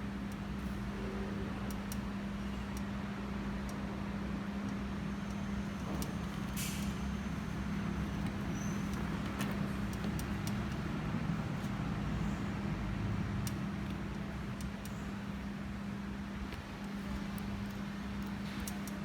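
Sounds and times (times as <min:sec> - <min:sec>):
low electrical hum: 0:00.0 - 0:19.0
faint clicks: 0:16.5 - 0:19.0.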